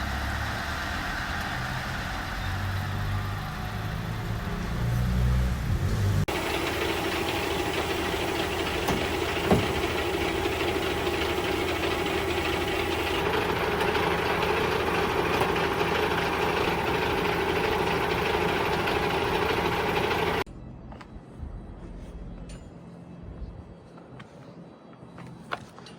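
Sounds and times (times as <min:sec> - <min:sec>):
truck engine running: 0:00.0 - 0:20.5
road noise: 0:00.0 - 0:24.4.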